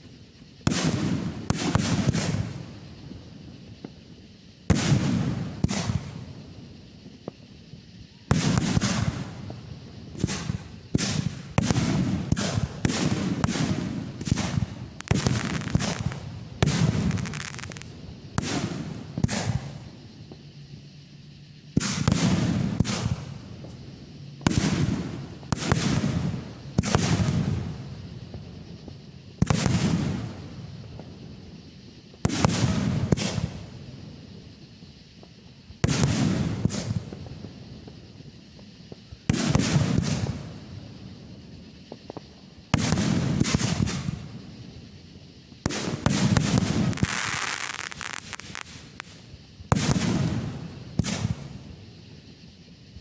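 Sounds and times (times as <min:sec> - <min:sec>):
fireworks bursting with bangs: 0:00.0 - 0:53.0.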